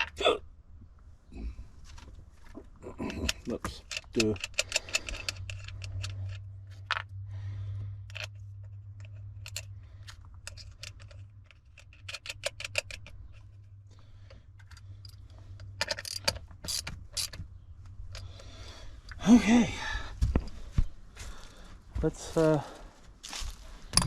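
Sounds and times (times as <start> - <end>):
steady low hum: 0.0 - 24.0
socket ratchet clicking: 3.3 - 7.1, 8.0 - 13.6, 14.3 - 17.4.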